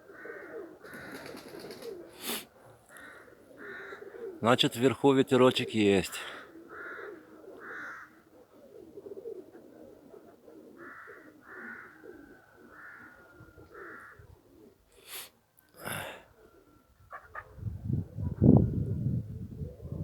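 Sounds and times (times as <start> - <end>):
pigeons cooing: 0.0 - 15.0, 16.0 - 20.0
short bird calls: 6.4 - 8.8.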